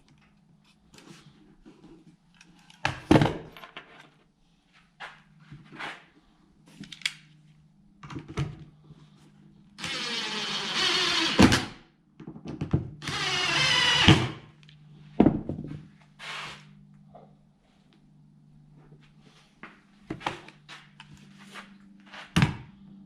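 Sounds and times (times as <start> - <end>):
hand-held power tool running: 9.8 - 11.8, 13.0 - 14.4
steady low hum: 13.0 - 23.0.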